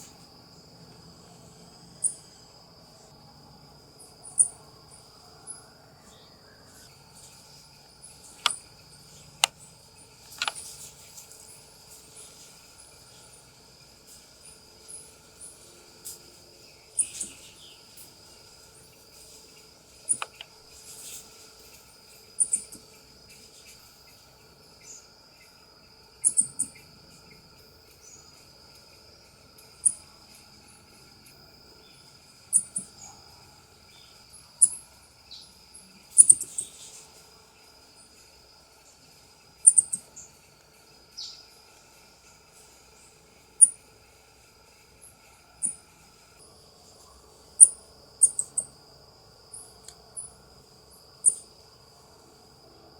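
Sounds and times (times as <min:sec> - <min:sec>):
high insect drone: 0:00.0 - 0:52.9
coati high-pitched chirps: 0:10.3 - 0:10.6, 0:20.1 - 0:20.4, 0:26.2 - 0:26.8, 0:36.1 - 0:36.8, 0:39.6 - 0:40.2, 0:45.6 - 0:45.8, 0:47.6 - 0:48.7.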